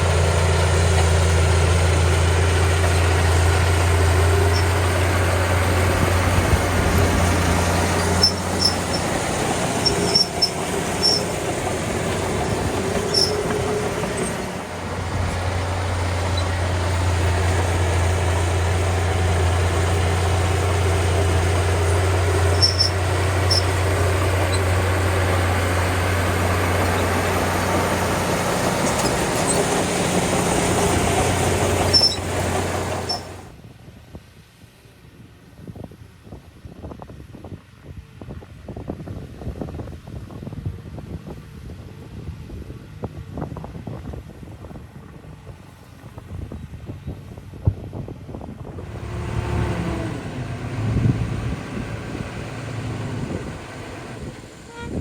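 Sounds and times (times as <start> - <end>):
bulldozer diesel engine running: 0.0 - 33.6, 41.1 - 55.0
high-pitched squeaks: 4.3 - 18.4, 19.5 - 33.5.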